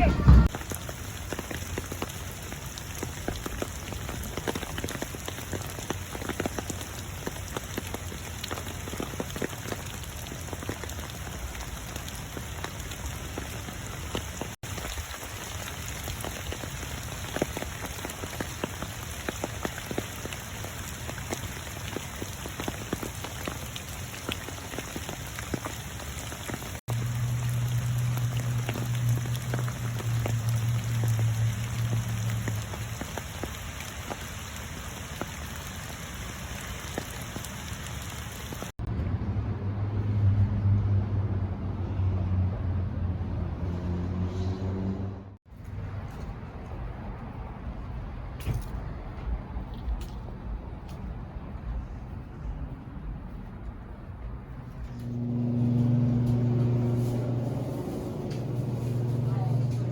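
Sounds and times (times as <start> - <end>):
rain on a hard surface: 0.0 - 38.9, 45.4 - 59.9
steady low hum: 54.7 - 59.9.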